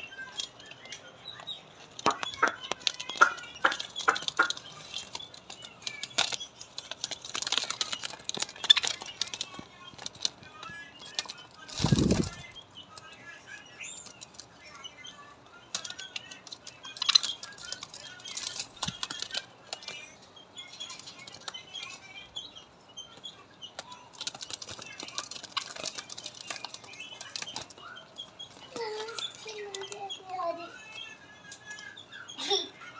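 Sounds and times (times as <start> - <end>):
birds chirping and chattering: 0.0 - 32.9
wings flapping: 1.9 - 12.6, 15.7 - 19.9, 23.7 - 27.9.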